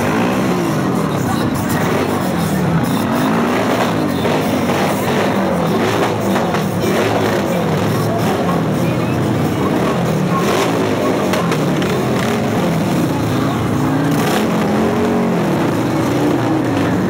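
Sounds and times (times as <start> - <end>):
motorcycle engines passing: 0.0 - 17.0.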